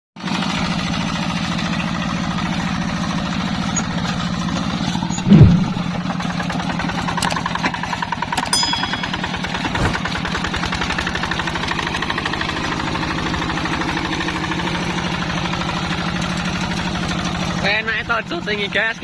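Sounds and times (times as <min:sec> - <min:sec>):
diesel engine thudding: 0:01.8 - 0:12.6
loud sound dropping in pitch: 0:05.2 - 0:06.1.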